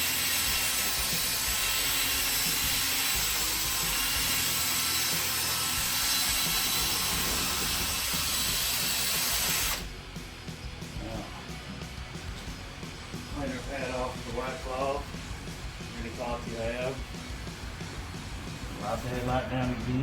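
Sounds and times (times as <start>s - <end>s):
drill wet sanding whir: 0.0s - 9.9s.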